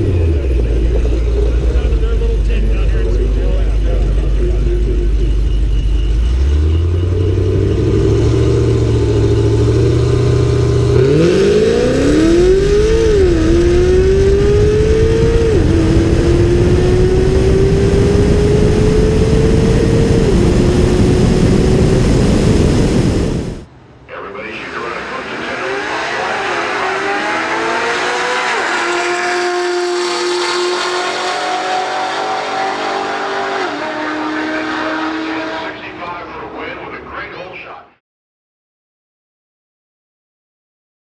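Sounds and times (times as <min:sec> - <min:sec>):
low steady engine drone: 0:00.0 - 0:25.8
race car accelerating hard: 0:00.0 - 0:37.0.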